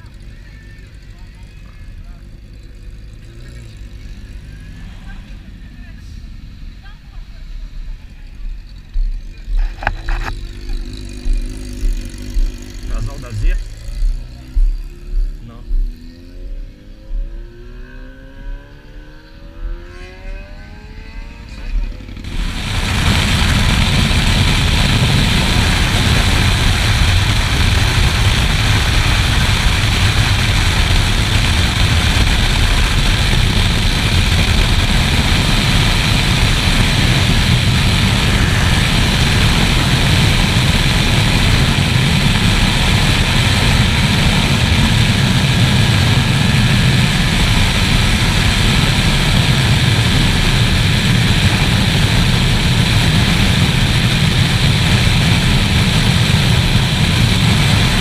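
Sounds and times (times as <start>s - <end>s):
motorcycle engine drone: 0.0s - 58.0s
wind buffeting microphone: 22.2s - 58.0s.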